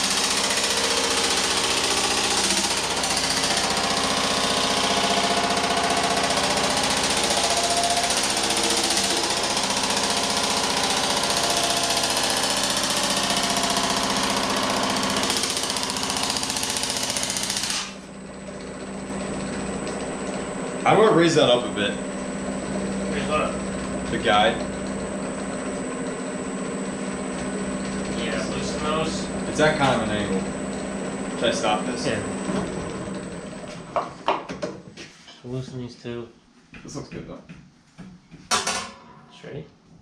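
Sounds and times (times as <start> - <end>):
machine hammering sheet metal: 0.0 - 18.1, 38.5 - 39.3
motor humming: 0.0 - 34.1.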